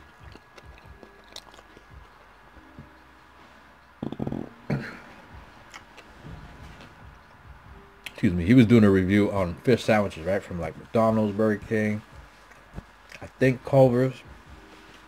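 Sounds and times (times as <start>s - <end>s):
wet mouth clicks: 0.0s - 2.1s, 4.0s - 4.6s
man chewing: 0.0s - 3.0s, 5.6s - 6.2s, 12.2s - 13.2s
low throat sound: 4.0s - 5.7s.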